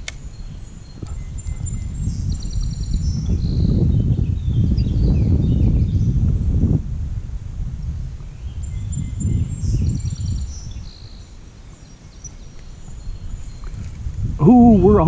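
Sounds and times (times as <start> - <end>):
wind rumbling on microphone: 0.0 - 15.0
small bird chirping: 0.2 - 6.0, 8.4 - 13.9.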